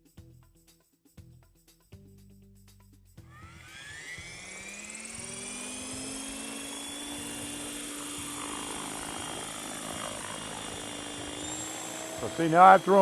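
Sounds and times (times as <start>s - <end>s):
model helicopter motor whine: 3.2s - 13.0s.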